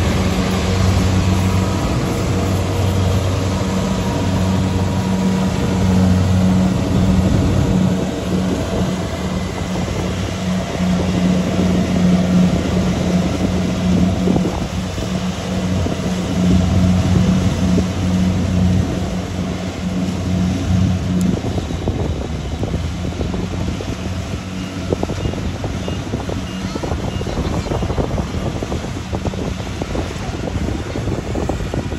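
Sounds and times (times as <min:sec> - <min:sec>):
harvester engine running: 0:00.0 - 0:31.9
wind buffeting microphone: 0:00.0 - 0:31.9.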